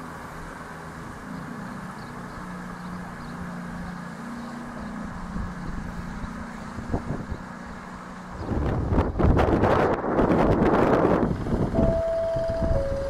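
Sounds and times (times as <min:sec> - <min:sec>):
diesel locomotive engine humming: 0:00.0 - 0:13.0.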